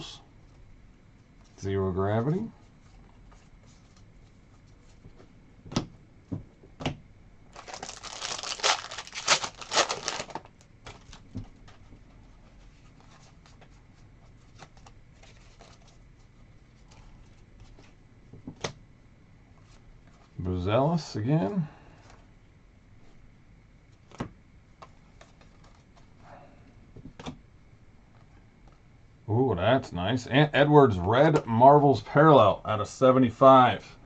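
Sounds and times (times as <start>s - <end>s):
wrapper tearing and crinkling: 7.5s - 11.2s
card handling: 7.6s - 11.9s.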